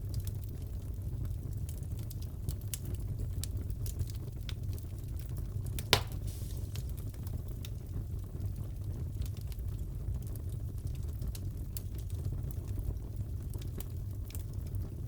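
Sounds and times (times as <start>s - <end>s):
wood fire crackling: 0.0s - 15.0s
loud fire pop: 5.8s - 7.2s.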